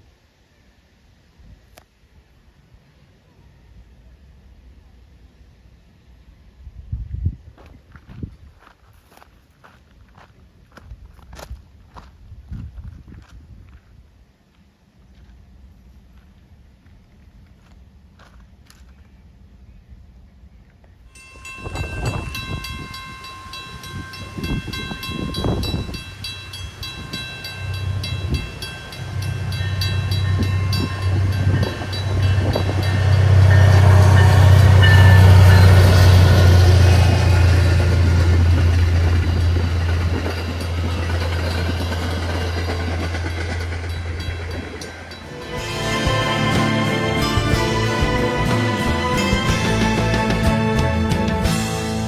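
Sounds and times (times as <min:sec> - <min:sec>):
diesel train passing: 0:21.1 - 0:52.0.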